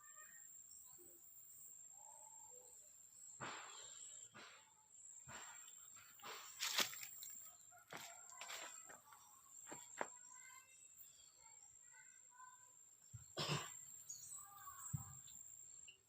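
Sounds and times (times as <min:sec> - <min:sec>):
bird chirps: 0:09.0 - 0:16.0.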